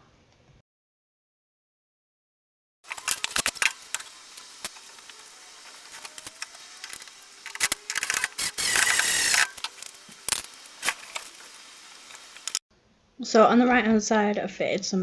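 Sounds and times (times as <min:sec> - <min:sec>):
burst of steady noise: 0:02.9 - 0:12.6.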